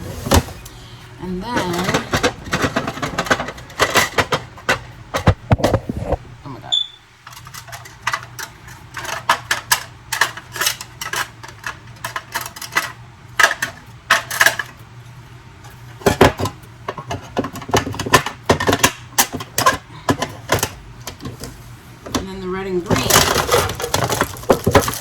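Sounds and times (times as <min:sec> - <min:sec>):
markers clattering into container: 0:22.9 - 0:25.0.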